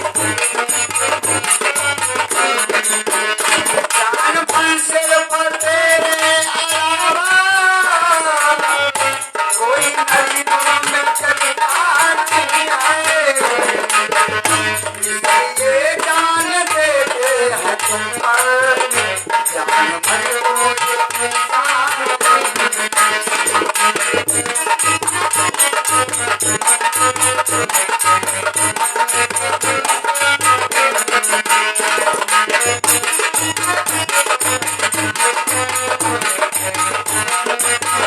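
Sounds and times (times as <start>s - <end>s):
low hand-drum beats: 13.0s - 18.4s, 23.4s - 27.7s.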